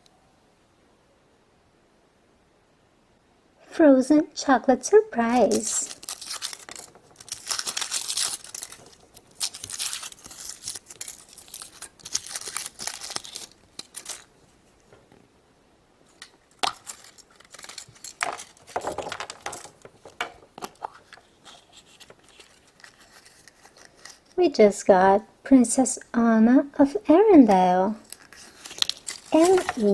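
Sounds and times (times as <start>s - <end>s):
wrapper tearing and crinkling: 5.4s - 14.8s, 16.1s - 24.4s, 28.0s - 29.9s.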